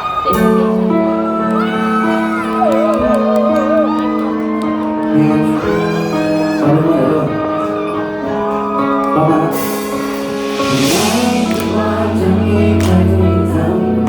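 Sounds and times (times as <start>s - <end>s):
guitar chords: 0.3s - 14.0s
people singing: 5.1s - 14.0s
cymbal crash: 9.5s - 13.2s.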